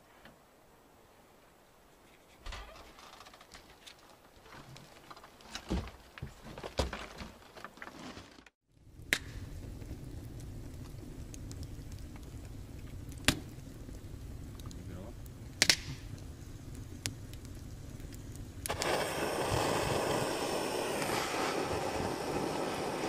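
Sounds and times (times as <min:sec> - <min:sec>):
wood fire burning: 0:02.0 - 0:23.0
knocks and rustles: 0:02.2 - 0:08.5
fire crackling pops: 0:02.4 - 0:07.6, 0:08.6 - 0:23.0.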